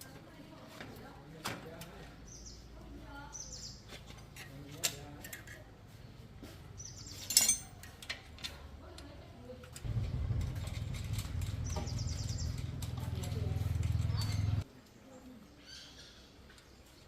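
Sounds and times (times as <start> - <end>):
birds chirping: 2.1 - 4.1, 6.0 - 7.5, 9.8 - 17.0
sharp clicks and knocks: 9.7 - 14.6.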